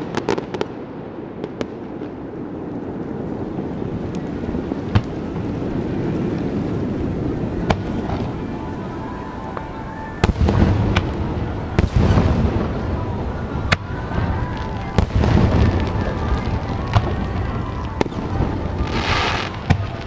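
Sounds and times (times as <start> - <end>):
fireworks bangs: 0.0 - 20.0
low rumbling booms: 10.2 - 20.0.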